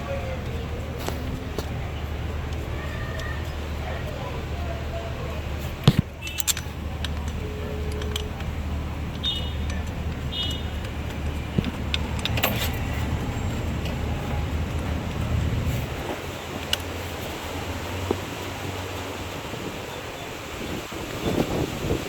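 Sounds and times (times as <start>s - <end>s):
hand tools clinking on metal: 6.2s - 14.0s.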